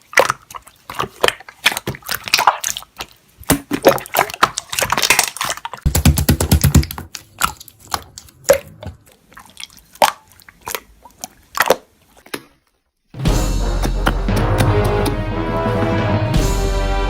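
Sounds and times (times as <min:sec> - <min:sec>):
slime squishing: 0:00.0 - 0:12.9.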